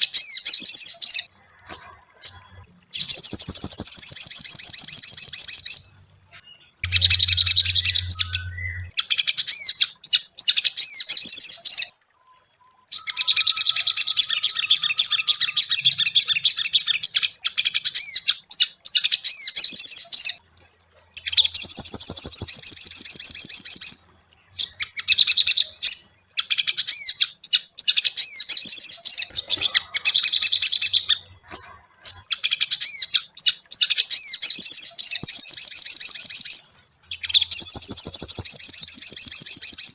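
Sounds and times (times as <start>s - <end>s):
bird chattering twitters and trills: 0.0s - 39.9s.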